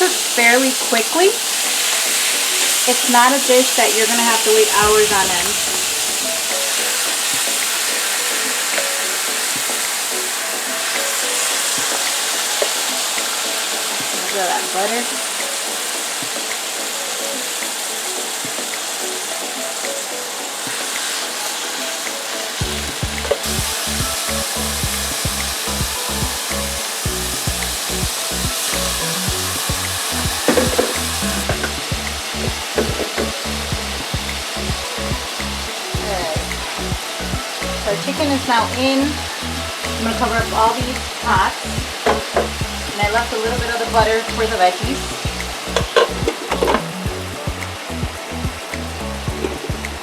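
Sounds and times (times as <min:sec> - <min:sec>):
chicken sizzling in butter: 0:00.0 - 0:50.0
music with pulsing bass beat: 0:22.6 - 0:50.0.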